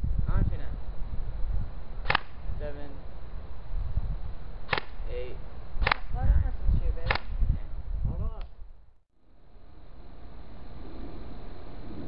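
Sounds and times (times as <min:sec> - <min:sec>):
airsoft gun shots: 0:02.0 - 0:02.4, 0:04.7 - 0:05.1, 0:05.8 - 0:06.1, 0:07.0 - 0:07.4.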